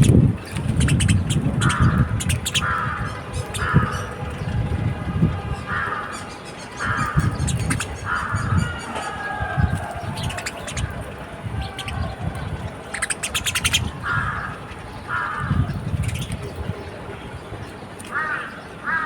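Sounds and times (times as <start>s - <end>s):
small birds chirping: 0.0s - 4.5s, 5.9s - 18.7s
crows cawing: 1.6s - 4.2s, 5.6s - 10.8s, 13.0s - 15.6s, 18.1s - 19.0s.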